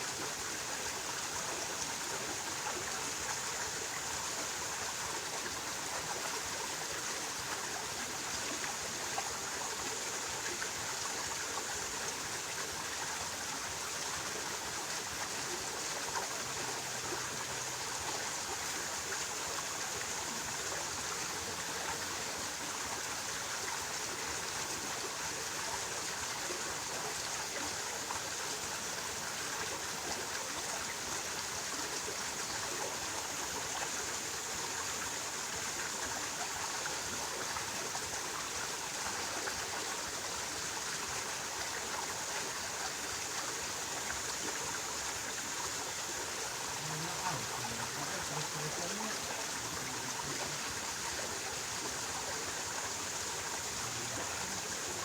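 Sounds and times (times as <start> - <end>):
stream rushing: 16.4 - 55.0
faint low voice: 46.6 - 51.4, 53.6 - 55.0.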